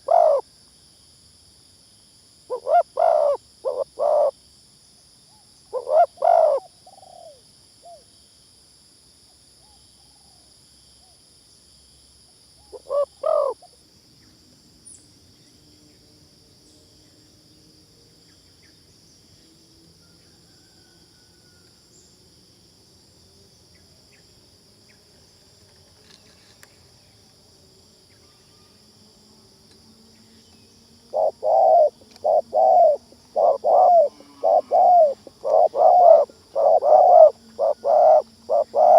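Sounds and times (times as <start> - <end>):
dove cooing: 0.0 - 0.4, 2.5 - 4.3, 5.7 - 7.4, 12.7 - 13.7, 31.1 - 38.9.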